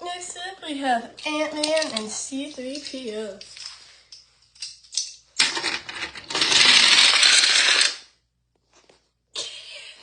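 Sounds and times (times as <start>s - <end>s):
toy cars rolling on plastic track: 5.4s - 8.1s.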